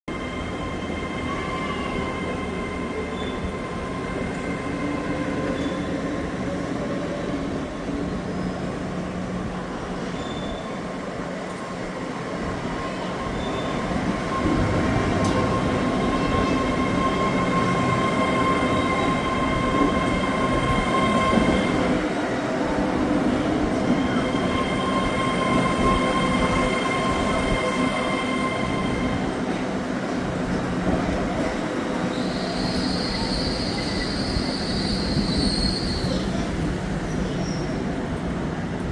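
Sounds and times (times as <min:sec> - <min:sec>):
train high-pitched squealing: 0:00.1 - 0:06.4, 0:07.2 - 0:08.9, 0:10.0 - 0:10.9, 0:12.8 - 0:22.0, 0:23.4 - 0:29.4, 0:31.8 - 0:37.9
train rumble: 0:00.1 - 0:38.9.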